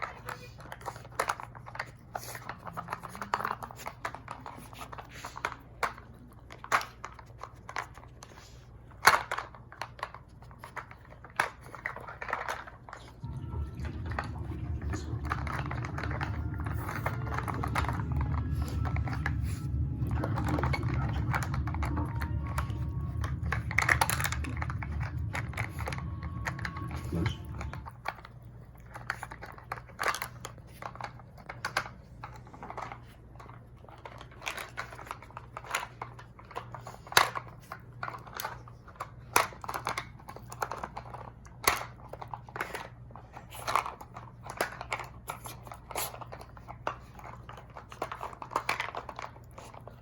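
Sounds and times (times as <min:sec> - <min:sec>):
steady low hum: 0:13.1 - 0:29.7
plastic toy clicks and knocks: 0:28.9 - 0:42.9, 0:43.6 - 0:50.0.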